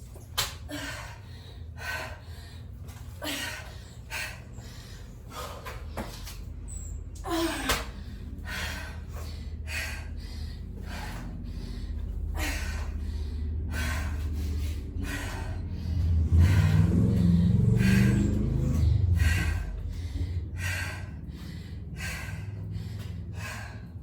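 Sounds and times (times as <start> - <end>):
low hum: 0.0 - 24.0
person breathing hard: 0.5 - 6.2, 7.2 - 24.0.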